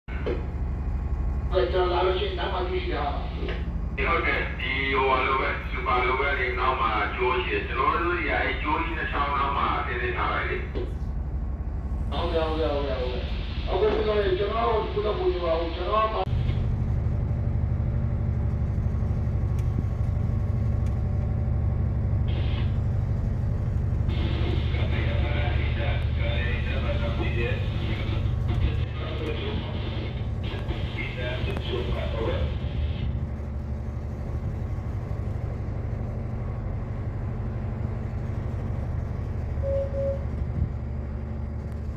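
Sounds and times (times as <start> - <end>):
ship machinery drone: 0.1 - 41.9
short electronic beeps: 39.6 - 40.3.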